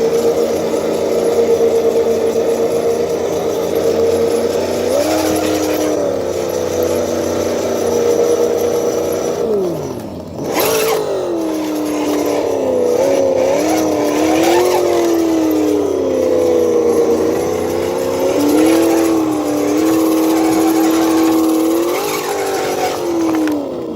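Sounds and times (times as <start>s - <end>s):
simulated engine from small speaker: 0.0s - 23.9s.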